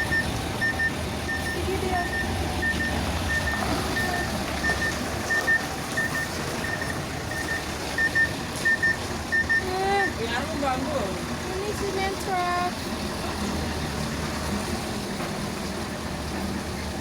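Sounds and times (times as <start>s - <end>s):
truck reversing alarm beeping: 0.0s - 14.0s
diesel engine rumbling: 0.0s - 17.0s.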